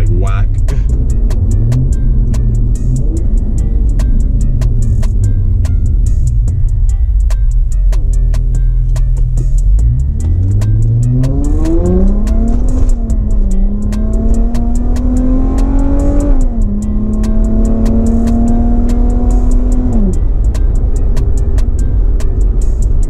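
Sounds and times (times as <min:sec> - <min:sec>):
car engine revving hard: 0:00.0 - 0:03.6, 0:09.8 - 0:20.3
music with steady beat: 0:00.0 - 0:23.0.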